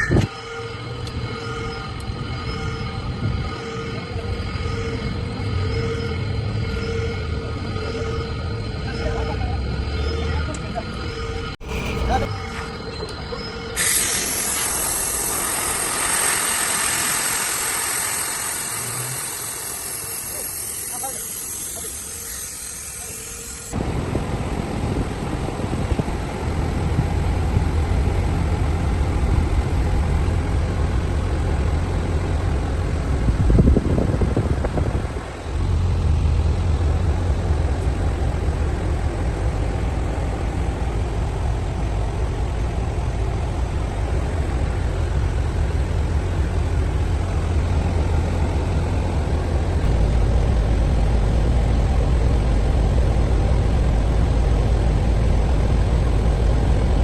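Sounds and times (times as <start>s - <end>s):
truck engine idling: 11.6s - 12.4s.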